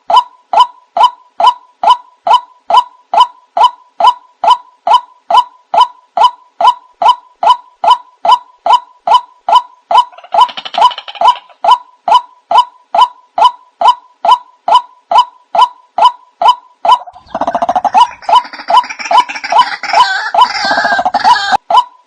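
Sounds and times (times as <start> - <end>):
chattering bird calls: 9.9 - 16.1, 16.8 - 21.6
bird croaking call: 17.0 - 21.6.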